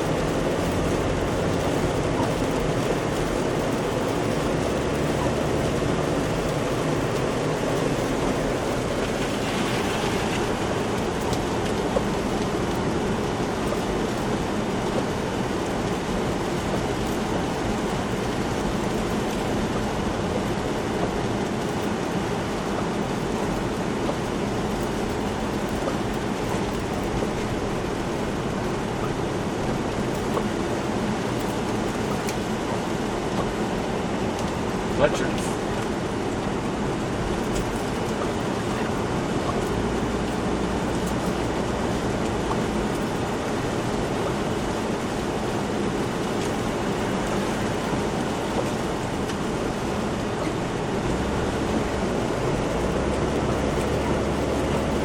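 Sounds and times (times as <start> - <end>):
low engine hum: 0.0 - 55.0
tyre hiss on wet road: 7.7 - 12.1.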